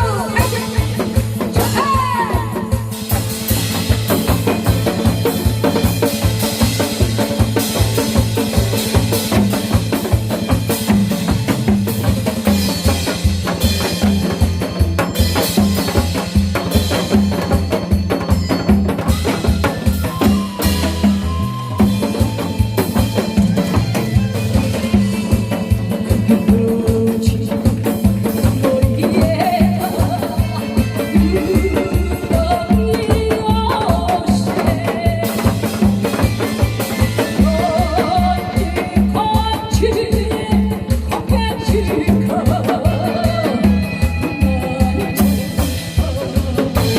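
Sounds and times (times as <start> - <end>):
instrumental melody: 0.0 - 34.3
drum-kit beat: 0.0 - 46.9.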